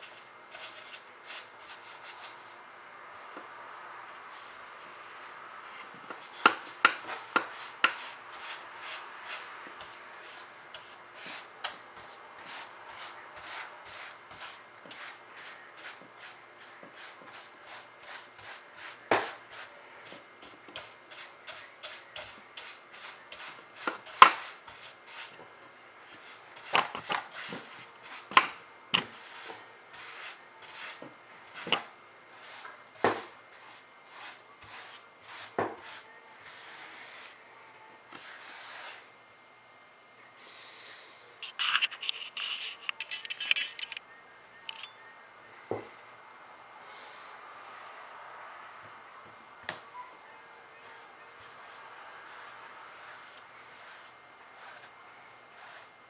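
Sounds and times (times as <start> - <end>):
paintbrush tapping and rubbing: 6.1 - 25.4.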